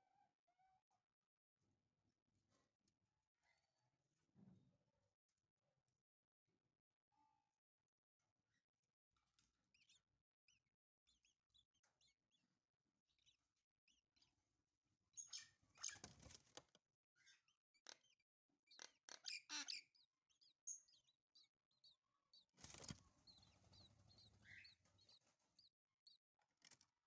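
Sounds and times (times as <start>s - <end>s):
bird chicks chirping: 15.2s - 16.4s, 18.7s - 21.1s, 22.3s - 26.2s.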